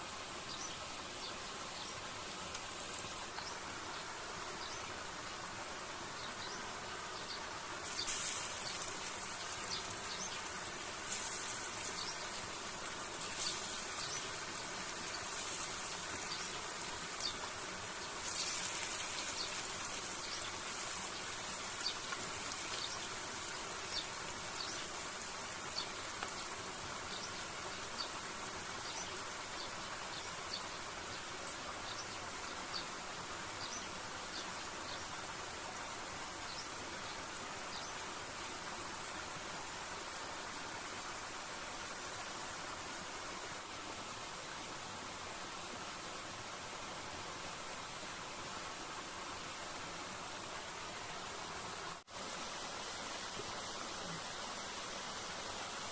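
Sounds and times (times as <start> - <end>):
steady background hiss: 0.0 - 55.9
insects buzzing: 0.1 - 38.5.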